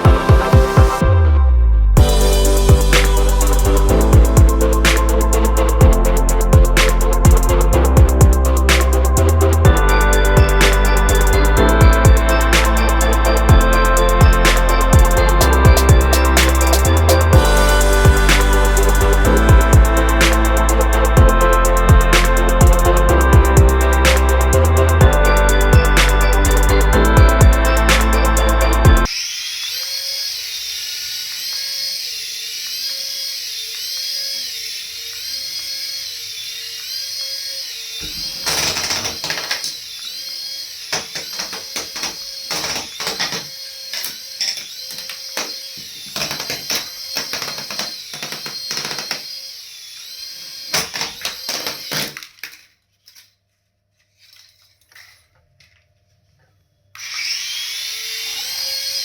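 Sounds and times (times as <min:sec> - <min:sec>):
toy electric motor whining: 0:09.8 - 0:53.4, 0:56.9 - 0:59.0.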